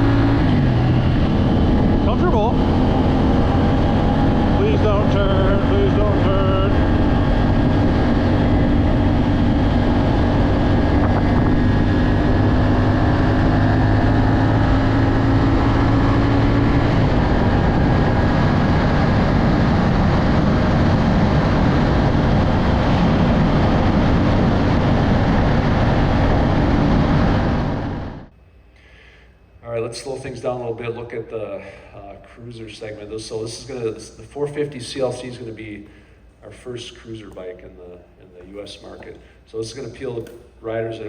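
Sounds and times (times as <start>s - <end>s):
motorcycle engine running: 0.0s - 28.3s
wind and road noise: 0.0s - 28.3s.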